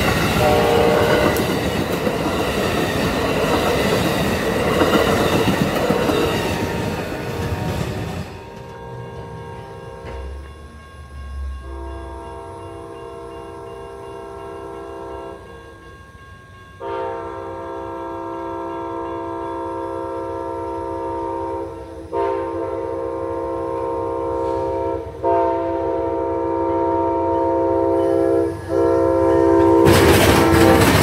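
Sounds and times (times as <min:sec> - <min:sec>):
train wheels rushing on rails: 0:00.0 - 0:26.5, 0:27.8 - 0:31.0
train horn chord blast: 0:00.2 - 0:01.5, 0:08.2 - 0:10.4, 0:11.3 - 0:15.7, 0:16.8 - 0:31.0.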